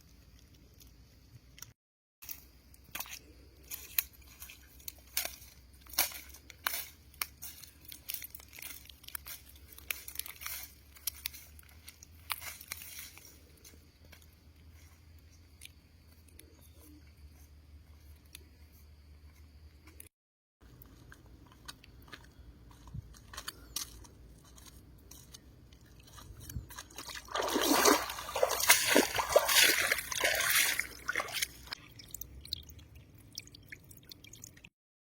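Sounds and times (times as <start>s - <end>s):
faint clicks and squelches in water: 23.4s - 34.7s
loud splashing and sloshing: 27.0s - 31.8s.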